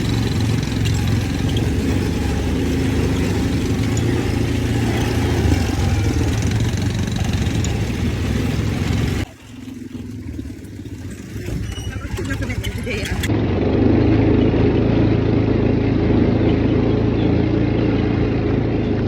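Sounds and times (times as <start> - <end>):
tyres on rough rocky road: 0.0 - 19.0
vehicle engine running: 0.0 - 19.0.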